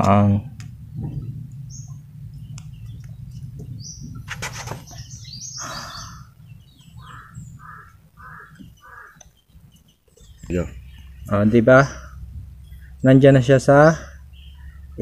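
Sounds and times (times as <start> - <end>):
low steady hum: 0.0 - 15.0
birds high chirps: 0.4 - 15.0
bird short repeated call: 4.3 - 6.3, 7.0 - 9.2.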